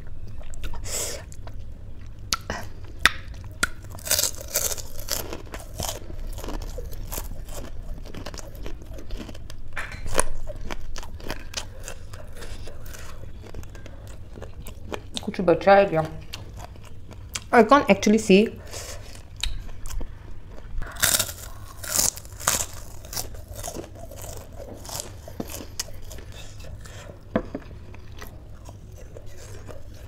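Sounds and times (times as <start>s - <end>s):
chewing crunchy food: 0.0s - 17.6s, 18.6s - 30.0s.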